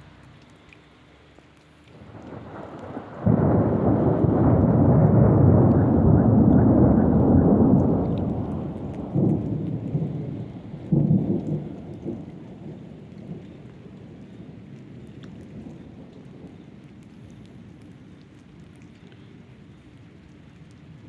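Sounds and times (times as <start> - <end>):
steady rain: 0.0 - 21.0
thunder rumbling: 2.0 - 17.8.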